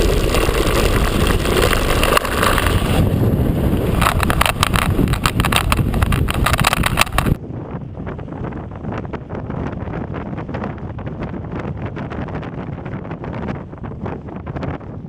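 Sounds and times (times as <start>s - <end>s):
mountain bike rattling: 0.0s - 7.4s
wind noise on microphone: 0.0s - 15.0s.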